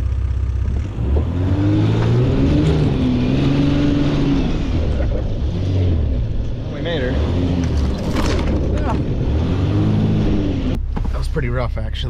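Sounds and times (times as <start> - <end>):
engine revving hard: 0.9 - 6.2, 6.8 - 10.8.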